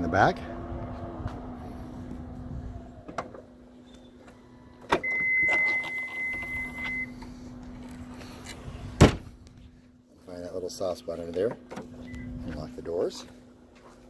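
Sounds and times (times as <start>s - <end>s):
high electronic beep: 5.0s - 7.1s.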